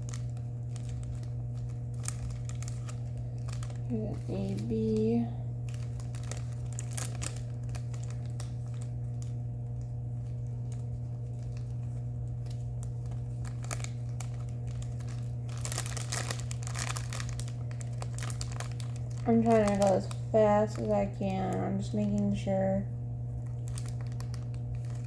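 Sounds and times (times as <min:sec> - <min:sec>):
plastic bags crinkling: 0:00.0 - 0:25.0
steady low hum: 0:00.0 - 0:25.0.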